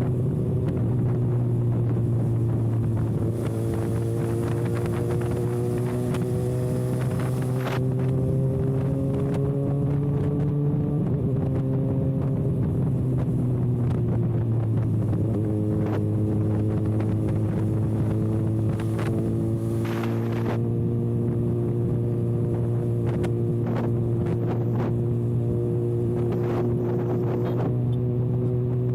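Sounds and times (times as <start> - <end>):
motorcycle engine cruising: 0.0 - 28.9
wind buffeting microphone: 0.0 - 28.9.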